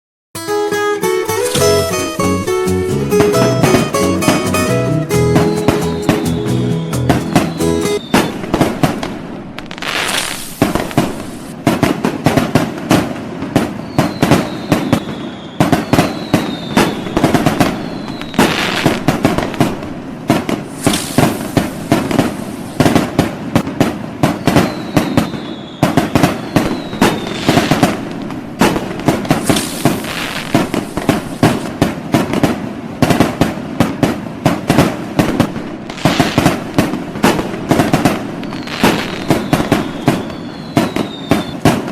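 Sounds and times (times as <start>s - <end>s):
fireworks cracking and popping: 1.3s - 41.9s
falling firework whistles: 7.0s - 11.6s, 13.4s - 32.5s, 34.8s - 41.9s
hissing firework rushes: 8.0s - 12.4s, 13.6s - 32.5s, 34.7s - 41.9s.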